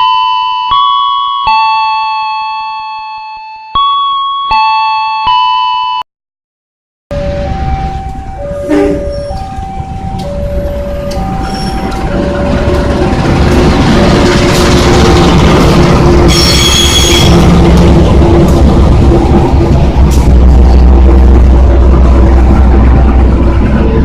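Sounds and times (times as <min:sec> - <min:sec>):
two-tone warning signal: 0:00.0 - 0:06.0, 0:07.1 - 0:14.3, 0:16.2 - 0:17.6
passenger train rumbling: 0:07.1 - 0:24.0
brief high squeal: 0:08.6 - 0:09.5, 0:11.4 - 0:11.9, 0:16.3 - 0:17.4.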